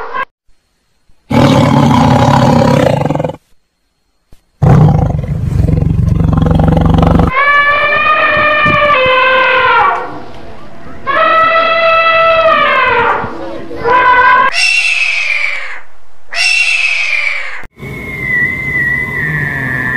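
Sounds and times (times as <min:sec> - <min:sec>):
large animal roaring: 0:01.3 - 0:03.4, 0:04.6 - 0:07.3
loud high horn-like call: 0:07.3 - 0:10.2, 0:11.0 - 0:13.3.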